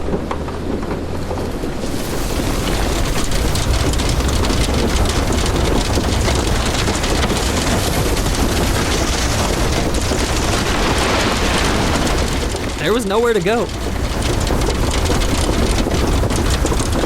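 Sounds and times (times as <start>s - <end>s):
heavy rain: 0.0s - 17.0s
wind: 0.0s - 17.0s.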